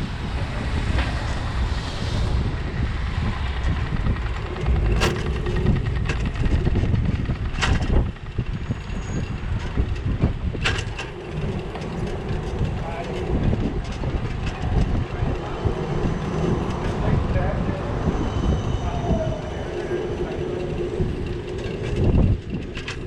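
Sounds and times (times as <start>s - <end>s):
wind buffeting microphone: 0.0s - 23.0s
sharp knocks or rattles: 3.7s - 15.1s.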